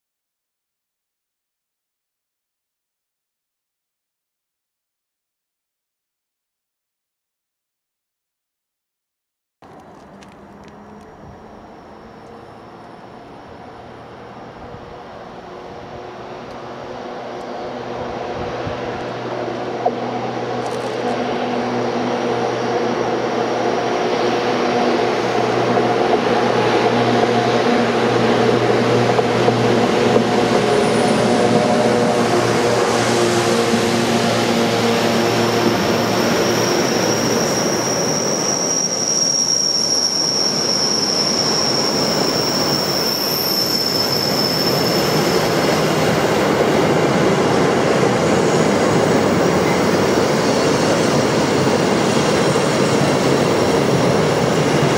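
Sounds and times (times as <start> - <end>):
locomotive hum: 9.6 - 54.9
high-pitched wheel squeal: 29.4 - 46.8, 48.2 - 54.9.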